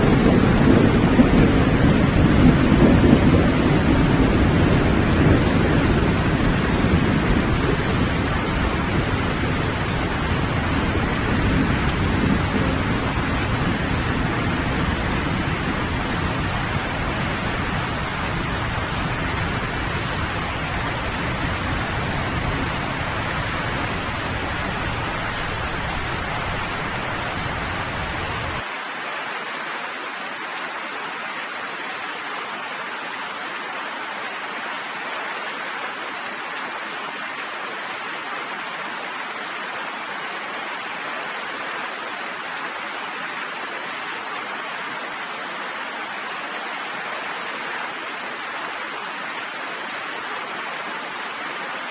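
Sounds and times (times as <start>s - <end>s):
rolling thunder: 0.0s - 28.6s
heavy rain: 0.0s - 51.9s.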